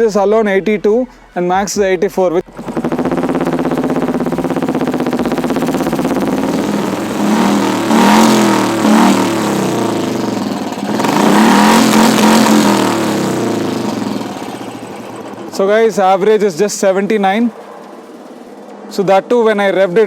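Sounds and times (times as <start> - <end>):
motorcycle engine idling and revving: 1.2 - 20.0.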